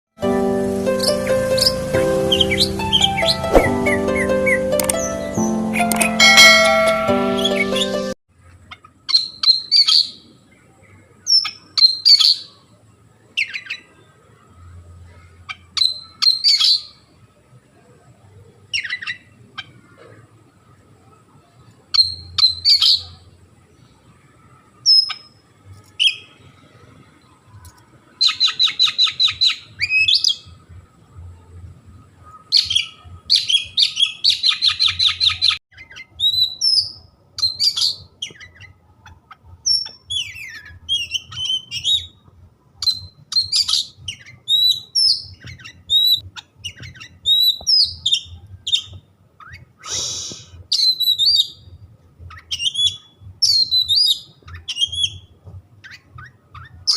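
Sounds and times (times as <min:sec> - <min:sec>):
bird rapid trills: 0:01.0 - 0:05.2
bird singing whistled notes: 0:01.0 - 0:06.5, 0:09.1 - 0:10.2, 0:15.8 - 0:17.0, 0:21.9 - 0:23.2, 0:32.5 - 0:38.7, 0:39.7 - 0:42.2, 0:42.8 - 0:55.3.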